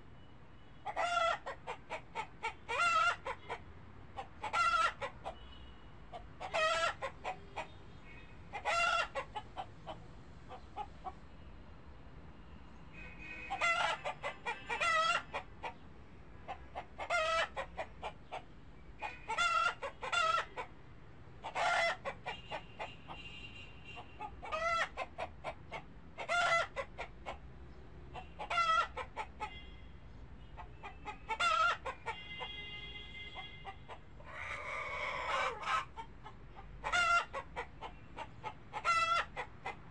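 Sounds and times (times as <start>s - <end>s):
chicken calling: 0.8s - 3.6s, 4.2s - 5.4s, 6.1s - 7.7s, 8.5s - 11.2s, 13.4s - 15.8s, 16.5s - 18.4s, 19.0s - 20.7s, 21.4s - 23.2s, 24.0s - 27.4s, 28.1s - 29.6s, 30.6s - 32.6s, 33.4s - 39.9s.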